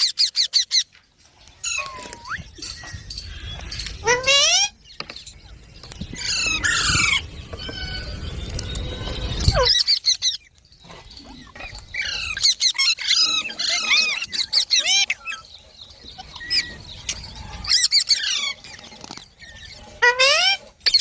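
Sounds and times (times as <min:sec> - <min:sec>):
parrots chirping and squawking: 0:00.0 - 0:21.0.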